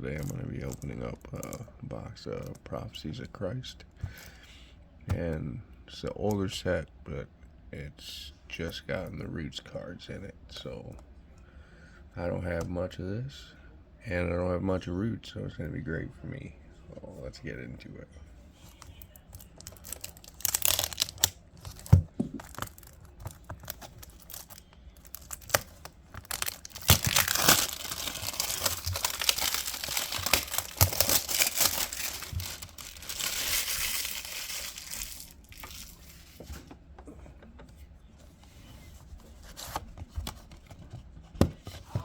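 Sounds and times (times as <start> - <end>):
packaging tearing and rustling: 19.4 - 36.4.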